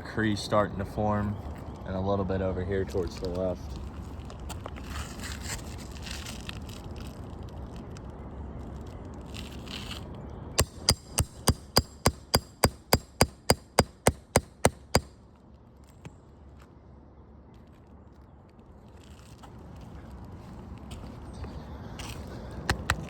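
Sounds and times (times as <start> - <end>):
sharp ringing taps: 10.6 - 15.1.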